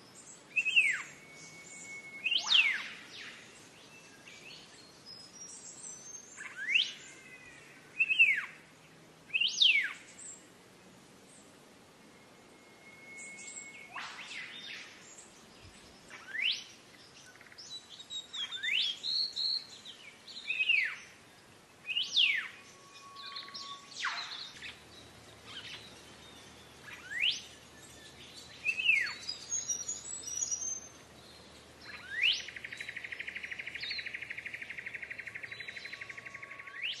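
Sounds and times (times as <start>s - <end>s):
bird whistling notes: 0.6s - 3.4s, 12.1s - 14.9s, 21.9s - 24.8s, 26.8s - 27.5s, 28.6s - 30.9s.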